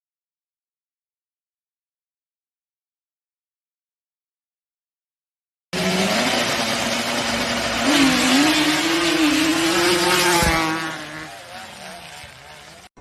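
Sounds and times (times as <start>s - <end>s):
road and wind noise: 5.8s - 12.9s
vehicle engine running: 5.8s - 13.0s.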